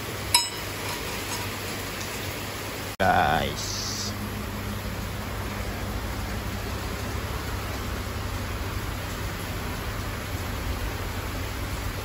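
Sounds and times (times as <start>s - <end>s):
rain falling: 0.0s - 12.0s
low hum: 3.0s - 11.8s.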